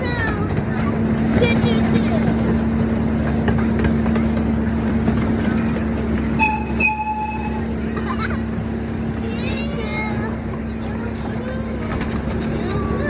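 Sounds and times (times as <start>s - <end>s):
miniature train droning: 0.0s - 13.0s
train horn tooting: 6.3s - 7.8s.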